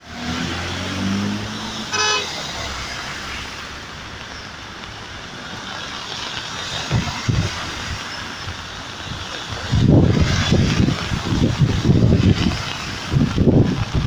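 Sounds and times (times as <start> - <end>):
heavy rain: 0.0 - 14.0
traffic on wet street: 0.0 - 14.0
wind buffeting microphone: 6.6 - 14.0.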